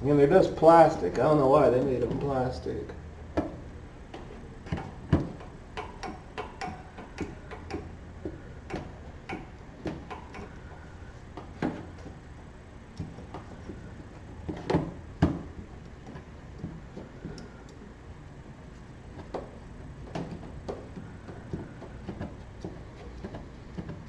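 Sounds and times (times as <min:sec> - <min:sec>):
wrench clicking on drain plug: 0:05.4 - 0:07.9.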